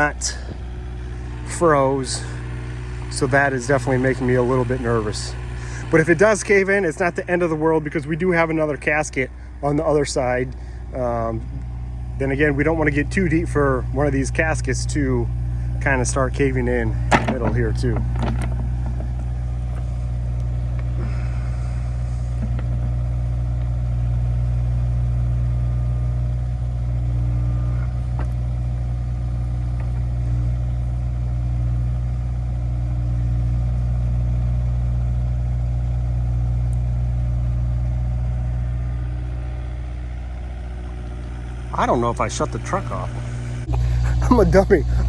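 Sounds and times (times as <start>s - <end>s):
faint engine knocks: 0.0s - 1.2s, 15.3s - 24.5s, 26.2s - 31.0s
diesel engine running: 0.0s - 45.0s.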